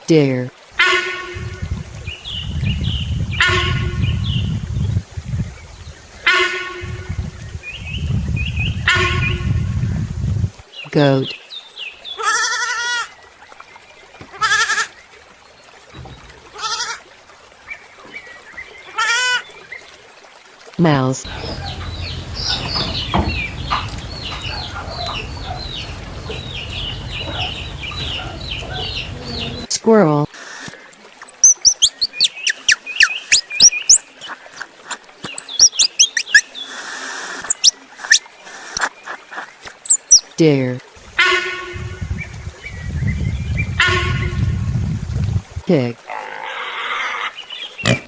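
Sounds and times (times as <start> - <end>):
goat bleating: 12.2 - 13.0, 14.4 - 14.9, 21.3 - 29.7
squirrel chirping and squeaking: 21.3 - 29.7, 30.7 - 36.4, 37.4 - 40.3.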